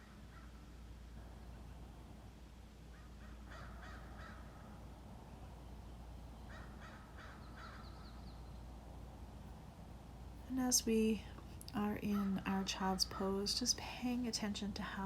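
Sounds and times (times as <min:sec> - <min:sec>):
steady low rumble: 0:00.0 - 0:15.0
bird calling faintly: 0:06.3 - 0:08.6.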